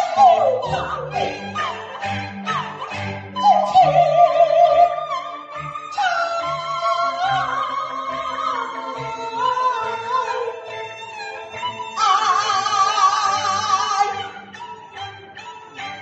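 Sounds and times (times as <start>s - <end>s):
person singing wavering line: 0.0s - 10.6s
opera instrumental accompaniment: 0.0s - 16.0s.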